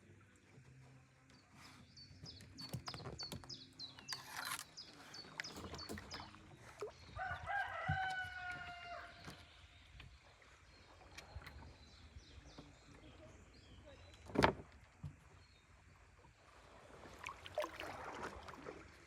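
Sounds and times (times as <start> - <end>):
rooster crowing: 7.2 - 9.2.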